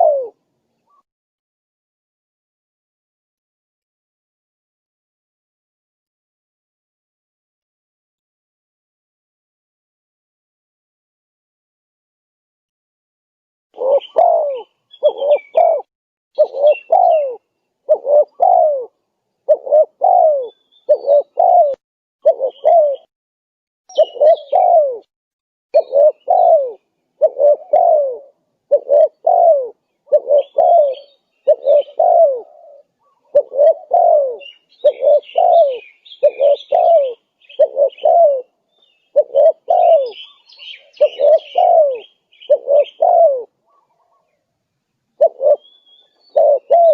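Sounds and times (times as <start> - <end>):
dove cooing: 0.0 - 1.0, 13.8 - 23.1, 23.9 - 25.1, 25.8 - 44.4, 45.2 - 46.9
small birds chirping: 0.0 - 1.1, 13.8 - 23.1, 23.9 - 25.0, 25.8 - 46.9.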